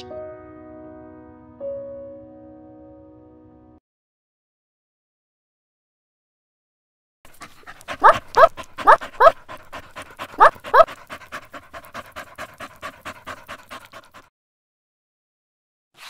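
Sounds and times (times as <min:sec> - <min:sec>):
dogs panting: 0:07.3 - 0:14.3
dog yips: 0:07.4 - 0:11.0.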